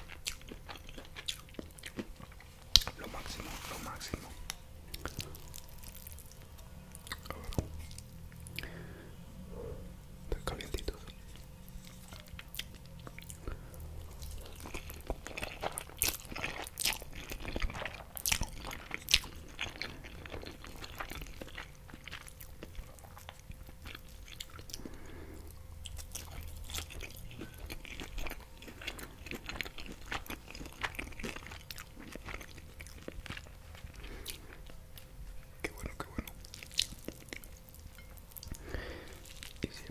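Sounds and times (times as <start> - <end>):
chewing with wet crunching: 0.0 - 4.3, 4.9 - 9.0, 10.4 - 39.9.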